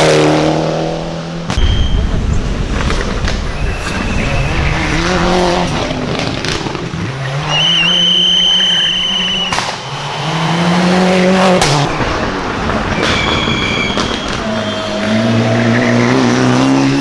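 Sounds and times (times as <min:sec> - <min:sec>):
rally car engine revving: 0:00.0 - 0:01.6, 0:02.2 - 0:17.0
tyre squeal: 0:07.2 - 0:17.0
sharp cracks: 0:09.3 - 0:15.1.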